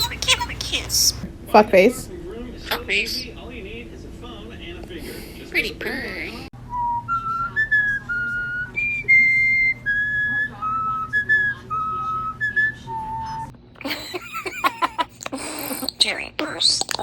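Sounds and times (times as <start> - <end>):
parrot harsh chatter: 0.0 - 1.2
parrot whistling a tune: 0.0 - 1.2, 6.7 - 13.5.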